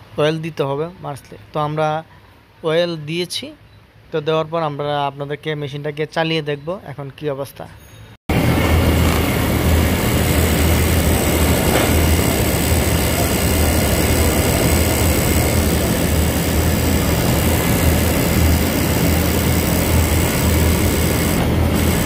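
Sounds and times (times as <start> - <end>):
sewing machine humming: 8.3 - 22.0.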